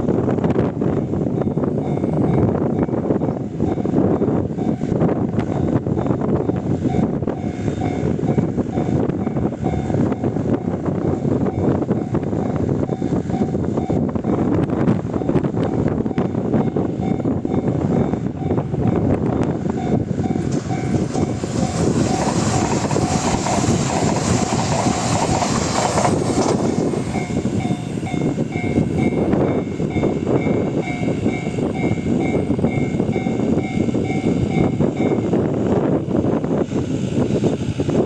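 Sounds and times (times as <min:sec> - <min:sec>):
high-speed train passing: 0:00.0 - 0:38.0
wind buffeting microphone: 0:00.0 - 0:38.0
level-crossing warning bell: 0:01.3 - 0:35.9
wheels clacking over rail joints: 0:19.9 - 0:31.2.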